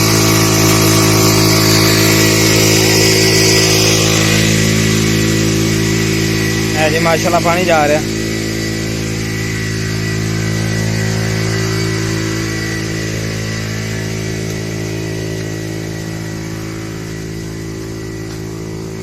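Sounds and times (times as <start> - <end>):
faint steady whine: 0.0 - 19.0
motorcycle engine running: 0.0 - 19.0.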